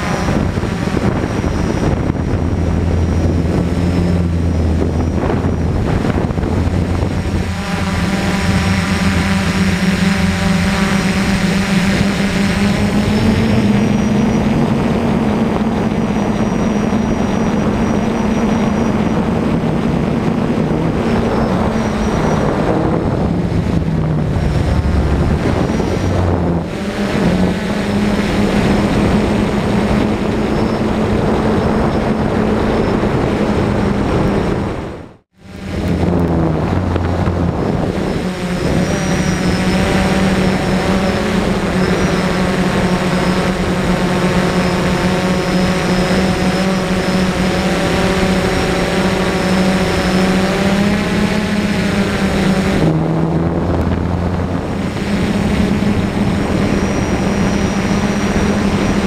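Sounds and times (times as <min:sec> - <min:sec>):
quadcopter propellers whirring: 0:00.0 - 0:59.0.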